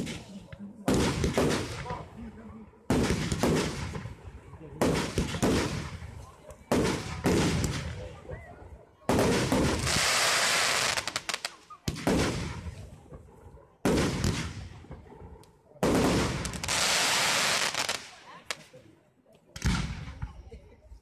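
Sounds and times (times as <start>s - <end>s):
firework bangs with echo: 0.0s - 2.1s, 2.9s - 8.2s, 9.1s - 15.1s, 15.8s - 18.2s
firework crackling: 9.1s - 12.6s, 15.8s - 18.8s.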